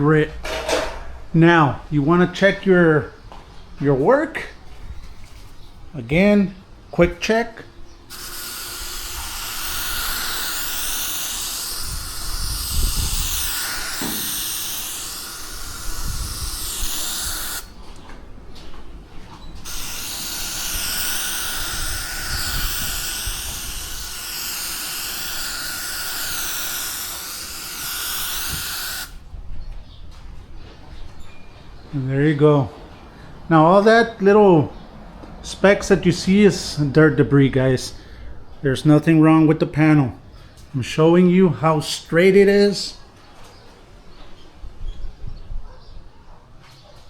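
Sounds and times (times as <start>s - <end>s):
compressed air hissing: 8.0s - 17.8s, 19.6s - 29.2s.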